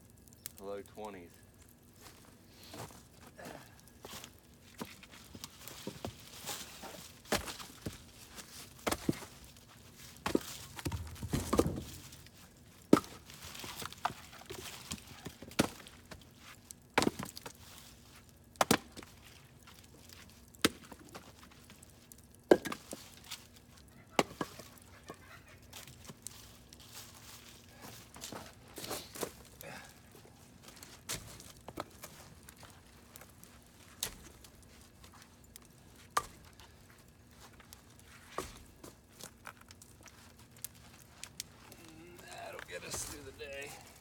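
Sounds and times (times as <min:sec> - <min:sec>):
firewood knocking and thudding: 0:07.2 - 0:17.6, 0:30.6 - 0:33.3.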